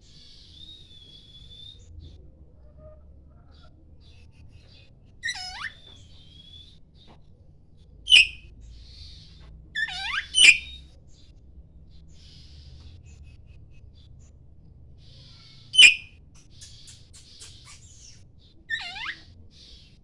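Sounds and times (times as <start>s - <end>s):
soft bird chattering: 3.6s - 6.5s, 8.1s - 10.9s, 15.0s - 20.0s
bird singing sharp notes: 8.1s - 8.4s, 9.8s - 10.8s, 15.8s - 16.1s.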